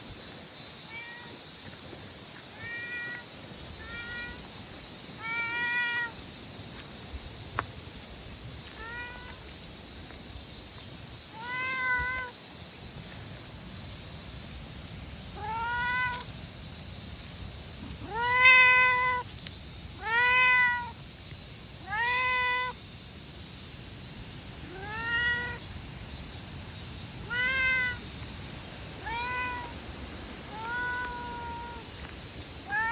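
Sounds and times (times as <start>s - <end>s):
steady high hiss: 0.0s - 32.9s
cat meowing: 2.6s - 3.2s, 3.8s - 4.4s, 5.2s - 6.2s, 8.8s - 9.4s, 11.3s - 12.3s, 15.4s - 16.2s, 18.0s - 19.3s, 20.0s - 21.0s, 21.8s - 22.8s, 24.7s - 25.6s, 27.3s - 28.0s, 29.0s - 29.7s, 30.5s - 31.8s, 32.6s - 32.9s.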